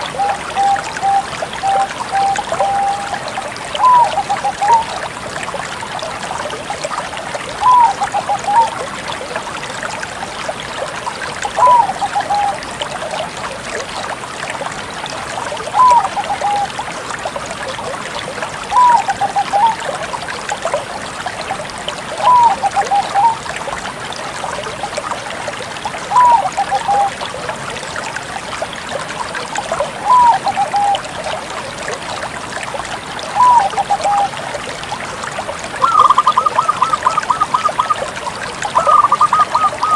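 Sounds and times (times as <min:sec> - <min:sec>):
dove cooing: 0:35.8 - 0:37.9, 0:38.8 - 0:39.9.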